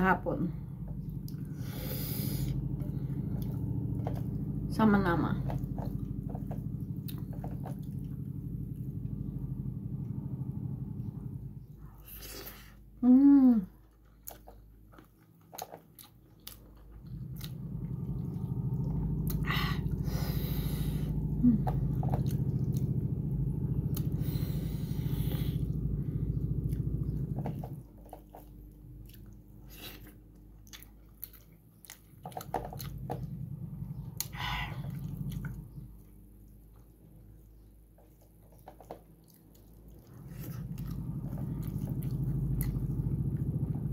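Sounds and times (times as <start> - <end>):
loud low pulsing hum: 0.0 - 13.7, 16.8 - 30.2, 32.2 - 37.7, 39.8 - 43.9
person chewing food: 5.6 - 9.0, 14.0 - 23.1, 23.8 - 33.4, 34.2 - 36.9, 37.6 - 43.5.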